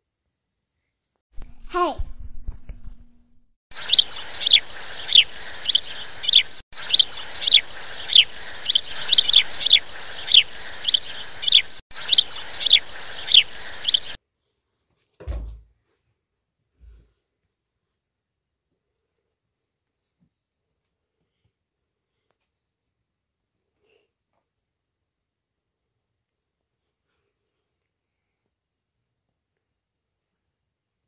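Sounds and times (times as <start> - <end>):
bird chirping: 3.7 - 14.2
short low thump: 15.2 - 15.7.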